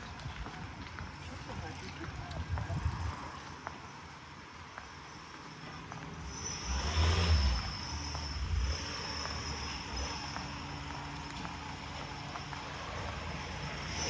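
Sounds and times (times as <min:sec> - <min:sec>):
car passing: 0:05.8 - 0:14.0.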